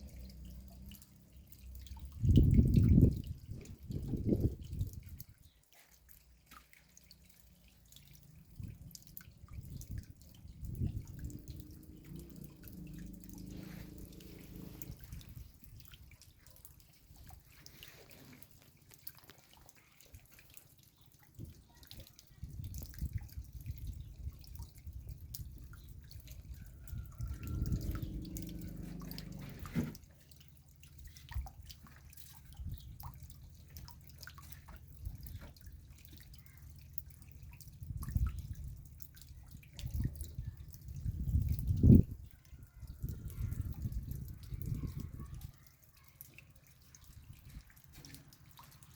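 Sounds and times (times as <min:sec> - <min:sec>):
raindrops dripping: 0:00.0 - 0:48.9
low rumbling noise: 0:10.7 - 0:15.5.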